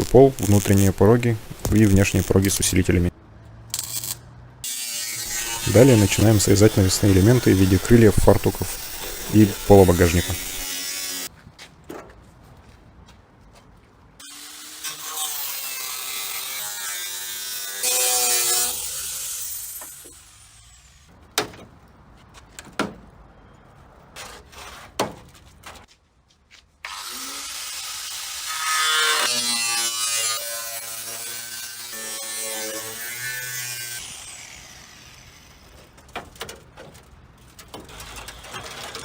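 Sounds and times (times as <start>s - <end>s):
power tool cutting sheet metal: 3.8s - 11.3s, 14.2s - 20.8s, 26.9s - 35.7s.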